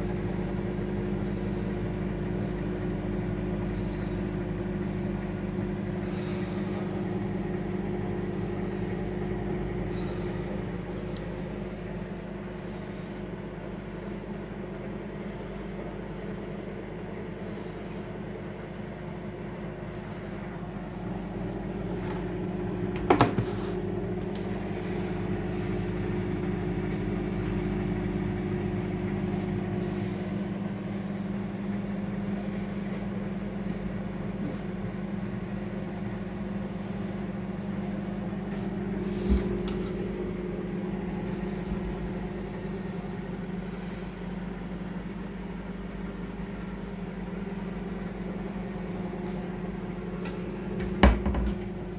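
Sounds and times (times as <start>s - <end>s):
microwave oven humming: 0.0s - 51.9s
short knocks: 50.8s - 51.8s.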